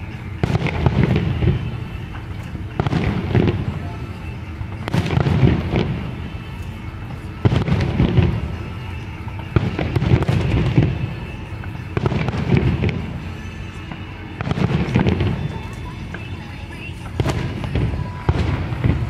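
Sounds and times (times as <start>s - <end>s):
firework crackle: 0.0s - 19.0s
firework shells booming: 0.4s - 6.5s, 7.3s - 16.3s.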